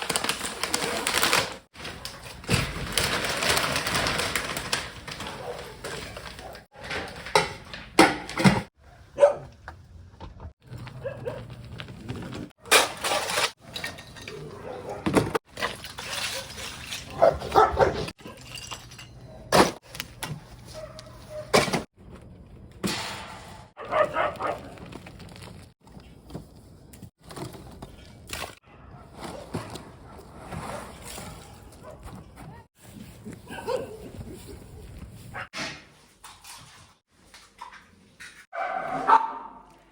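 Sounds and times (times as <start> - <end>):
dogs barking: 8.8 - 9.6, 14.3 - 15.4, 16.2 - 18.4, 20.7 - 21.6, 23.8 - 24.8, 31.6 - 32.7, 38.5 - 39.8.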